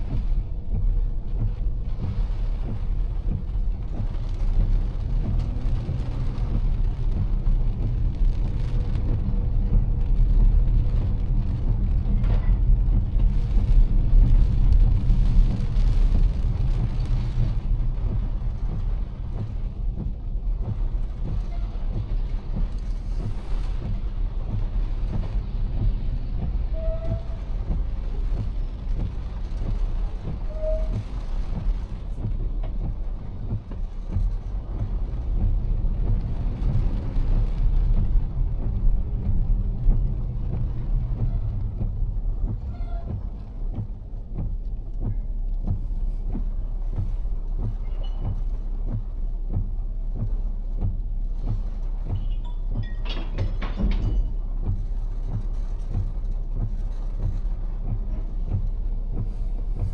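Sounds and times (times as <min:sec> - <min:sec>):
car engine and tyres on wet road: 0:00.0 - 0:59.9
rain hiss: 0:00.0 - 0:59.9
raindrops ticking on car: 0:00.0 - 0:59.9.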